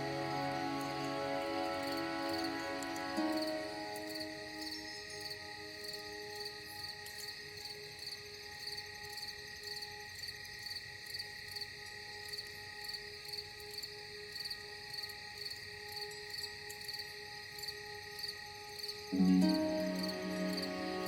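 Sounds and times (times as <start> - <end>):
low musical chord: 0.0 - 5.2, 19.2 - 21.0
soft ambient drone: 0.0 - 7.3, 19.2 - 21.0
crickets chirping: 0.0 - 21.0.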